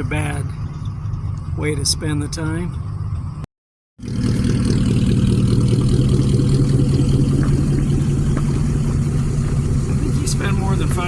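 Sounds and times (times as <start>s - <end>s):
car engine idling: 0.0s - 3.4s, 4.0s - 11.0s.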